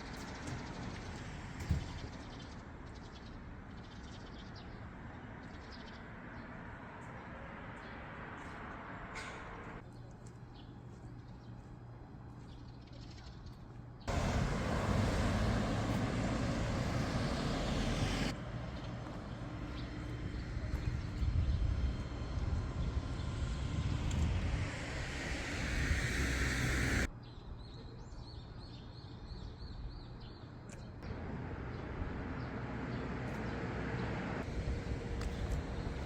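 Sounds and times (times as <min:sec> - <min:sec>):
motorbike engine hum: 0:14.1 - 0:27.1, 0:31.1 - 0:36.0
wind rushing over microphone: 0:20.1 - 0:27.1, 0:34.4 - 0:36.0.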